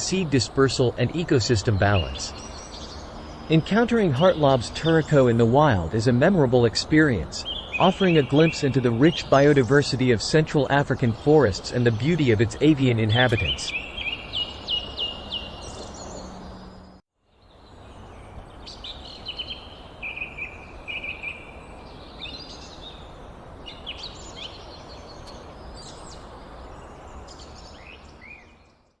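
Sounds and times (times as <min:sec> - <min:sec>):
small birds chirping: 0:00.0 - 0:29.0
steady background hiss: 0:00.0 - 0:29.0.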